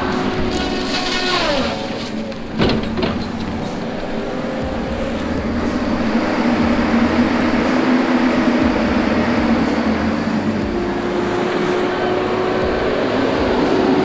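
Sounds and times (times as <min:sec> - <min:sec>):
heavy diesel engine droning: 0:00.0 - 0:14.0.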